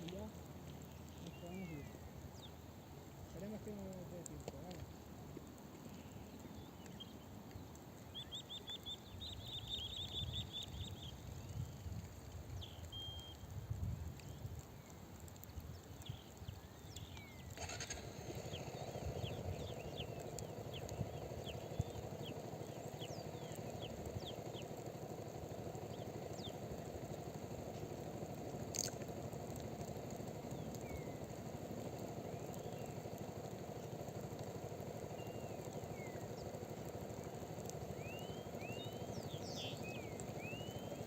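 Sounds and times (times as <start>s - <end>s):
faint motorcycle engine: 0.0s - 41.0s
bird chirps: 0.8s - 3.9s, 5.8s - 11.9s, 12.5s - 13.5s, 15.7s - 27.0s, 30.4s - 41.0s.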